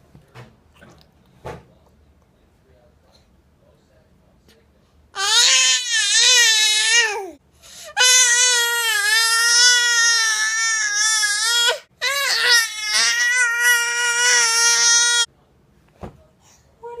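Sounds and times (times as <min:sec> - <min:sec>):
baby crying: 0:05.2 - 0:15.3.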